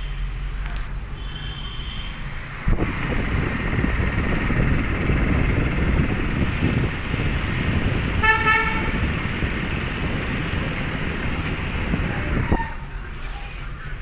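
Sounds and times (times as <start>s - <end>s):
car road and engine rumble: 0.0s - 14.0s
vehicle horn beep: 1.2s - 2.2s, 8.1s - 9.1s.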